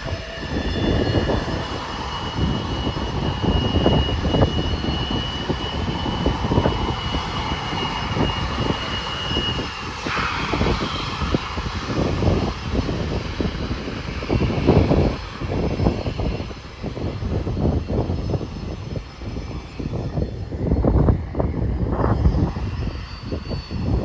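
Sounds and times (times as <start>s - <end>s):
jet engines whining: 0.0s - 24.0s
wind buffeting microphone: 0.0s - 24.0s.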